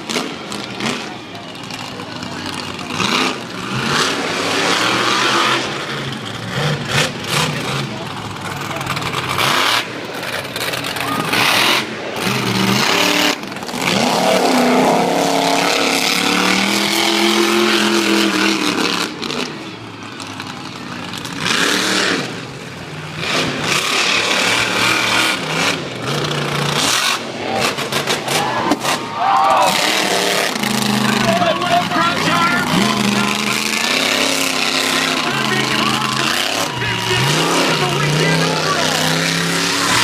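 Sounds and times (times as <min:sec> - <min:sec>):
monster truck engine revving: 0:00.0 - 0:40.0.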